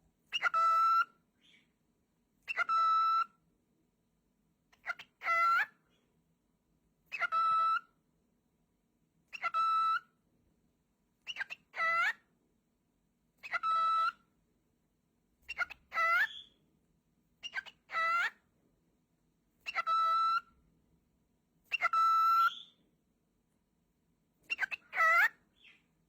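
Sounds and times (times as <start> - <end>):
cockatiel chirping and whistling: 0.3 - 1.7, 2.4 - 3.4, 4.8 - 5.8, 7.1 - 7.9, 9.3 - 10.1, 11.2 - 12.2, 13.4 - 14.3, 15.4 - 16.6, 17.4 - 18.4, 19.6 - 20.6, 21.7 - 22.8, 24.4 - 25.9.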